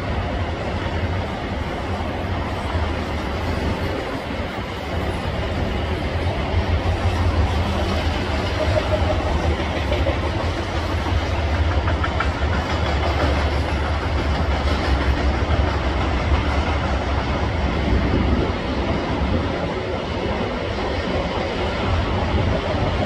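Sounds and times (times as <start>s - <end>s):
steel wheels rumbling on rail: 0.0s - 23.0s.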